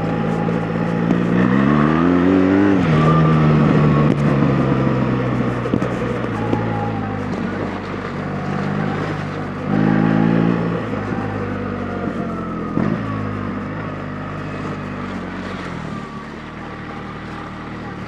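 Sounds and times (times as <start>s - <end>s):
motorcycle engine running at low revs: 0.0s - 18.0s.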